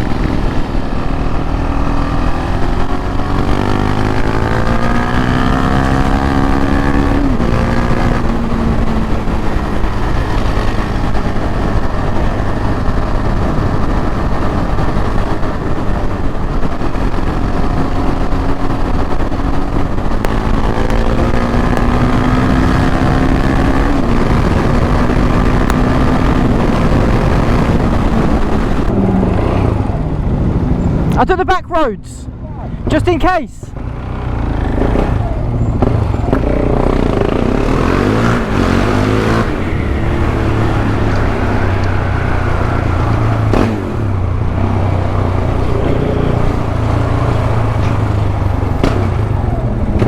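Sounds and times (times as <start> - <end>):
wind rush on microphone: 0.0 - 31.2
motorcycle engine accelerating: 0.0 - 31.4, 33.7 - 50.0.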